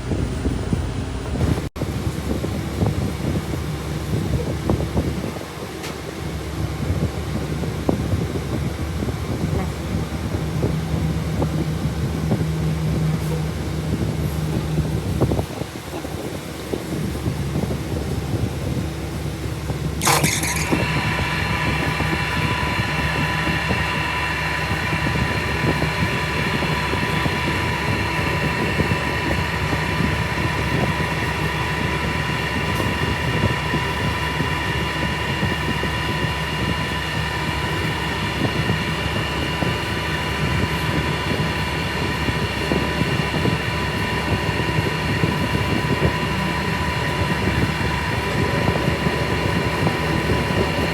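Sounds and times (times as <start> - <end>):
machine rumble: 0.0 - 3.3, 17.3 - 50.9
high steady machine whine: 0.0 - 5.5, 16.8 - 50.9.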